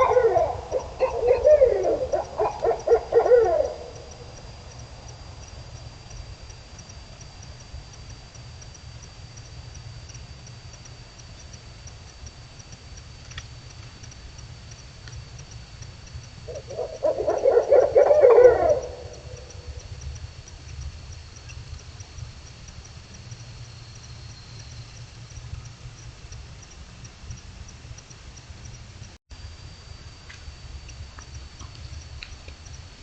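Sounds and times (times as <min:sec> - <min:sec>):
animal wavering call: 0:00.0 - 0:04.4, 0:16.5 - 0:20.0.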